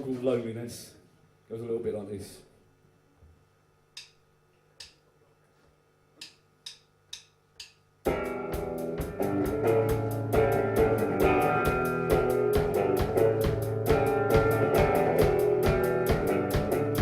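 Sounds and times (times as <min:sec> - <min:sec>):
drumsticks clicking together: 0:04.0 - 0:04.2, 0:06.2 - 0:07.8
drum kit: 0:08.0 - 0:17.0
electric guitar: 0:08.1 - 0:17.0.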